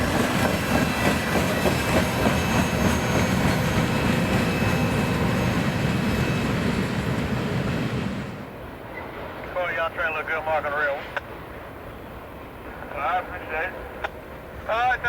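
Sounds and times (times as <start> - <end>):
steel wheels rumbling on rail: 0.0 - 9.5.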